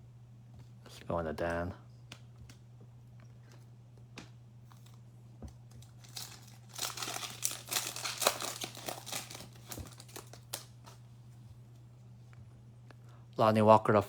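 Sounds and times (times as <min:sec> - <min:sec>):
steady hum: 0:00.0 - 0:14.0
foil wrapper tearing and crinkling: 0:05.7 - 0:11.0.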